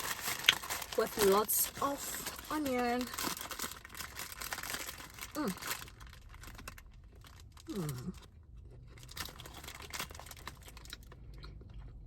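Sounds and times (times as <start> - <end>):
paper wrapper crinkling: 0.0 - 8.2, 8.9 - 11.1
person humming mmm: 7.7 - 8.2.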